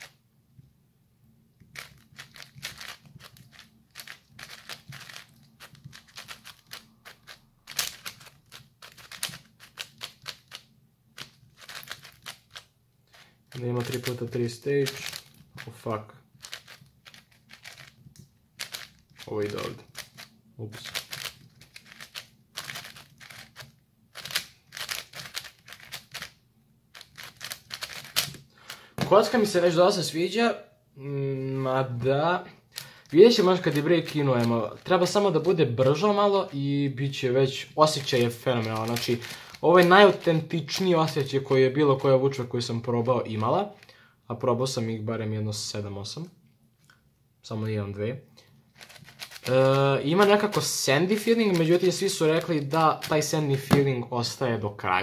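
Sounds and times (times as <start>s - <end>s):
speed cube plastic clicks: 1.6s - 15.7s, 16.4s - 29.0s, 32.7s - 34.8s, 38.1s - 40.3s, 48.8s - 53.8s.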